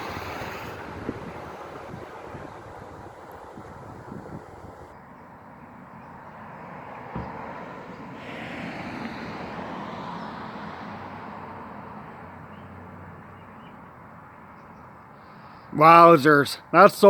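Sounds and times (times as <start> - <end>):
vehicle passing: 0.0 - 5.0, 6.2 - 13.6
outdoor background noise: 0.0 - 17.0
knock: 7.1 - 7.4.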